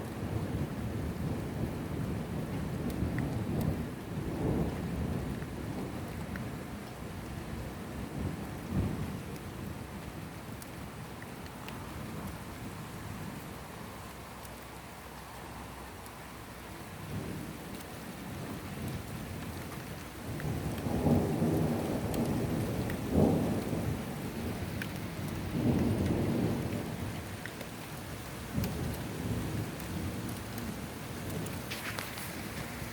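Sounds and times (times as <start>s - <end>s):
raindrop ticks: 2.4s - 7.6s, 8.5s - 12.6s, 13.3s - 32.9s
rain hissing: 19.7s - 32.9s
rolling thunder: 20.3s - 27.3s, 28.5s - 32.9s.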